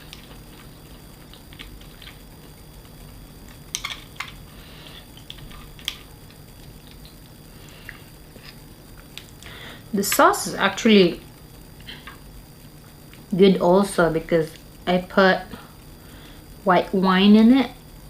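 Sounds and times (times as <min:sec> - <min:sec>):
soft chewing: 0:00.0 - 0:09.5.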